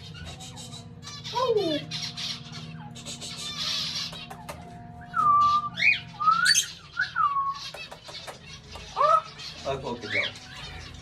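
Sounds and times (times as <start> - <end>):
cockatiel whistled calls: 5.0 - 7.8.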